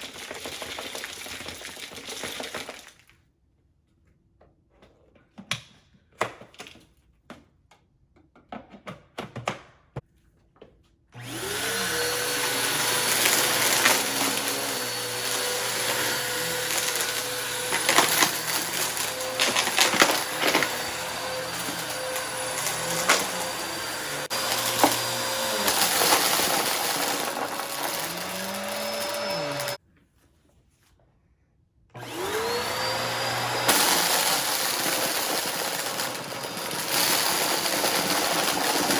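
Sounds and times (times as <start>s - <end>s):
vacuum cleaner motor whine: 11.2s - 29.8s, 32.0s - 38.9s.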